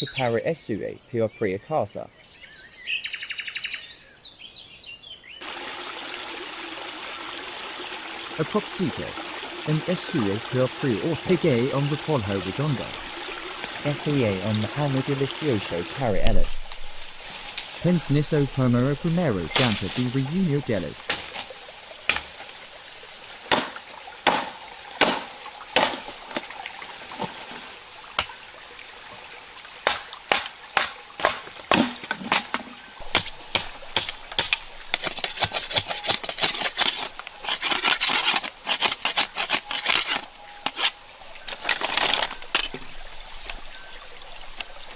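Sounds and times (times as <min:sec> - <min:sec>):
sharp wooden knocks: 0:23.5 - 0:26.4, 0:29.8 - 0:36.3
rapid clicking and scraping: 0:33.1 - 0:42.8.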